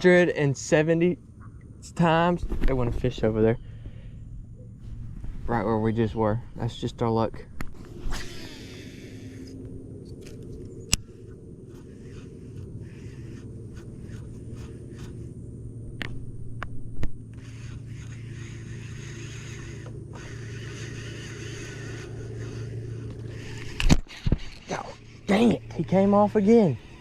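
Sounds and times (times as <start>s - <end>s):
fishing reel being cranked: 7.8s - 15.3s, 17.3s - 27.0s.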